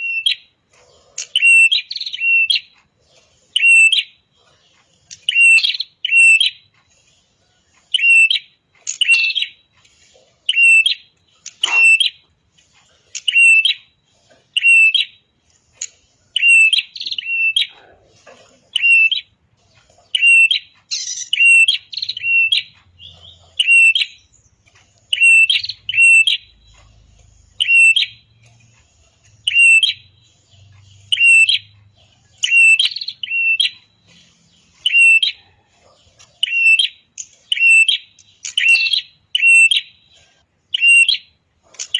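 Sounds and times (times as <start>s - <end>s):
bird chirping sharply: 1.2s - 2.8s, 5.1s - 6.6s, 8.0s - 9.6s, 10.5s - 12.2s, 13.2s - 14.0s, 14.6s - 15.2s, 16.4s - 17.8s, 18.8s - 19.4s, 20.1s - 28.5s, 29.4s - 35.5s, 36.4s - 41.9s.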